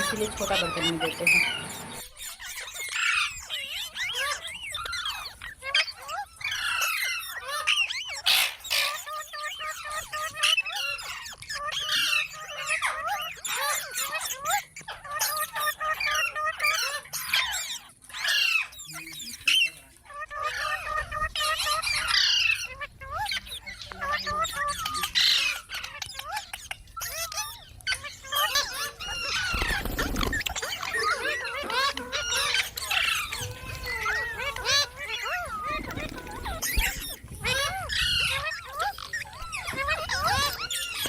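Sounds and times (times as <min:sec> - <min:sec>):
parakeets chirping and squawking: 0:00.0 - 0:41.0.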